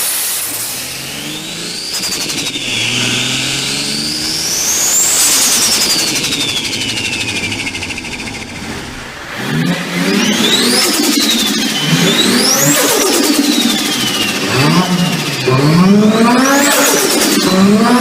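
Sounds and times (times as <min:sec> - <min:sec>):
car engine revving: 0:00.0 - 0:18.0
turbo whistle: 0:00.2 - 0:08.5, 0:10.1 - 0:18.0.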